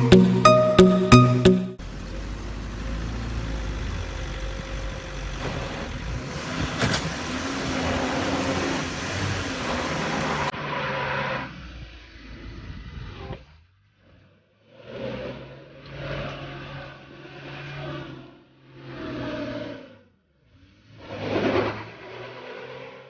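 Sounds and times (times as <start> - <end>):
suv engine revving: 1.8 - 13.5.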